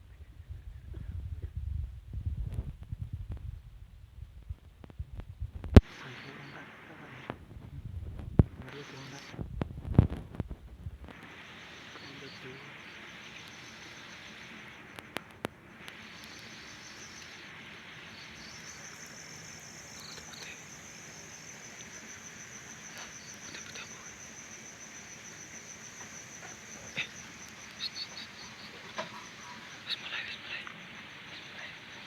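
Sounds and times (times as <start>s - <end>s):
background hiss: 0.0s - 32.0s
insect trilling: 5.8s - 7.4s, 8.4s - 9.4s, 10.0s - 32.0s
sharp clicks: 14.9s - 16.5s.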